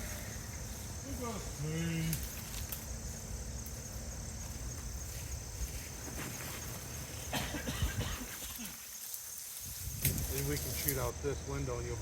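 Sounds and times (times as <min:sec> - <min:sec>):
insects chirping in a trill: 0:00.0 - 0:12.0
wind rumble on microphone: 0:09.6 - 0:10.8.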